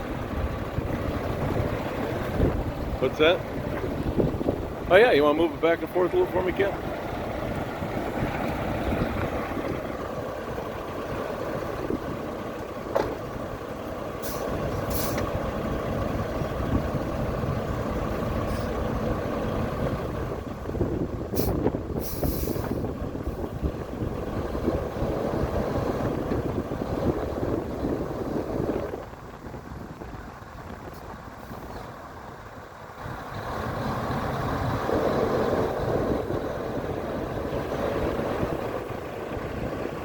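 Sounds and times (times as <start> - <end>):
diesel truck engine running: 0.0 - 40.0
air brake hisses: 14.2 - 15.2, 21.4 - 22.8.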